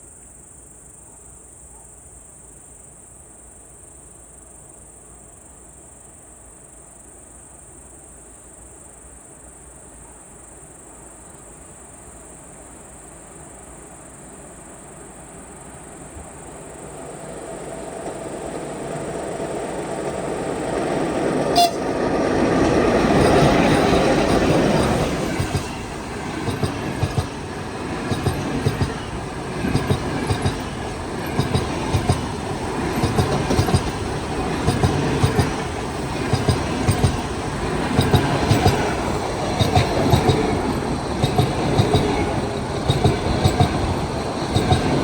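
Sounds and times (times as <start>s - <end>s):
insects chirring: 9.2s - 45.0s
approaching train rumble: 13.2s - 45.0s.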